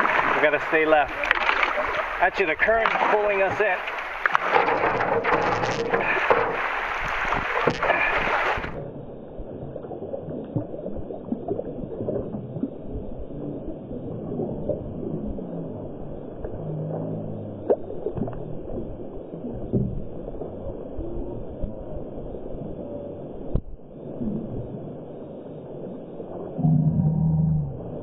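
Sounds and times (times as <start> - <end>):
river water rushing: 0.0 - 8.8
underwater gurgling and knocking: 2.7 - 24.9.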